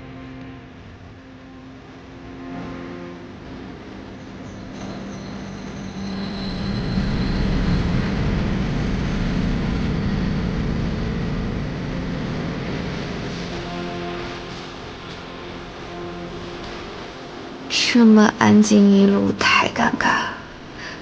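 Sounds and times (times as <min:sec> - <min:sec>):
subway train rumbling past: 0:00.0 - 0:21.0
faint high squeal: 0:04.1 - 0:11.1.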